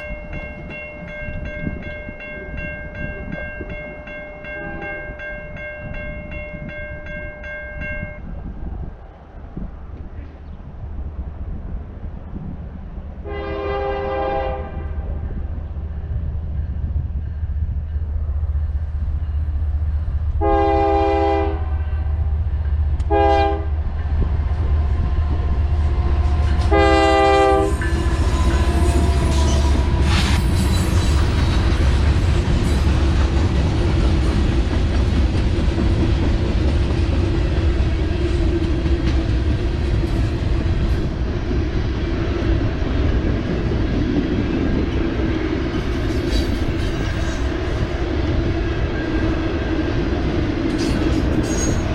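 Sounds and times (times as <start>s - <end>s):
locomotive horn blasts: 4.5s - 5.1s, 13.2s - 15.2s, 20.4s - 22.2s, 23.1s - 23.8s, 26.6s - 30.0s
locomotive engine rumble: 8.3s - 51.9s
train wheels clattering on rail: 22.6s - 51.9s.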